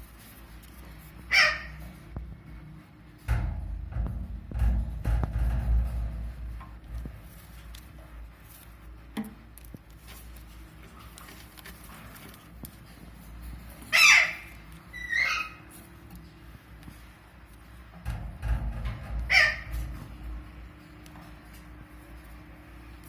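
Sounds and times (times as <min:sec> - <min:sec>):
low background rumble: 0:00.0 - 0:23.0
parrot squawking: 0:01.3 - 0:01.8, 0:13.9 - 0:15.7, 0:19.3 - 0:19.7.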